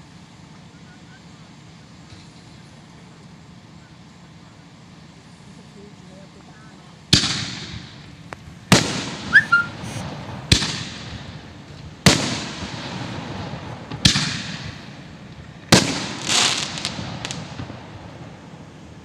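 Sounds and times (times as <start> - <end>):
firework bangs with echoing rumble: 7.1 - 19.0.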